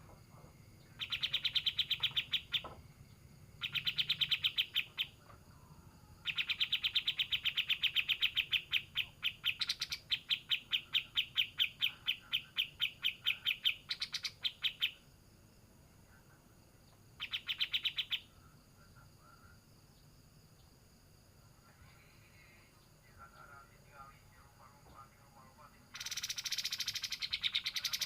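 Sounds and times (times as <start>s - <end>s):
bird singing rattling song: 0.8s - 5.3s, 6.2s - 15.1s, 16.8s - 18.4s, 25.8s - 28.0s.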